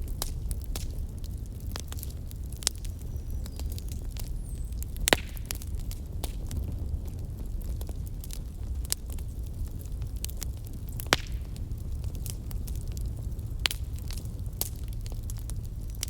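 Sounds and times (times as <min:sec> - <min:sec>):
fire crackling and popping: 0:00.0 - 0:16.0
low rumble: 0:05.8 - 0:16.0.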